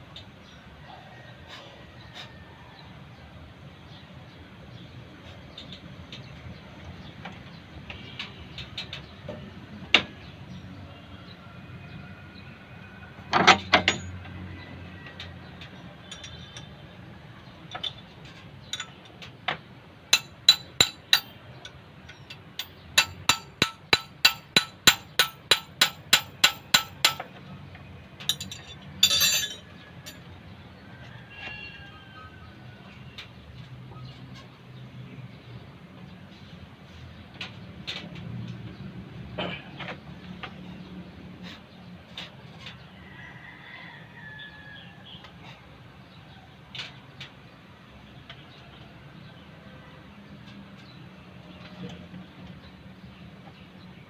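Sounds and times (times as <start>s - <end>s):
tools clicking on metal: 15.2s - 16.7s, 18.7s - 19.3s, 20.2s - 27.3s, 28.2s - 30.2s
metal clatter: 28.2s - 30.2s.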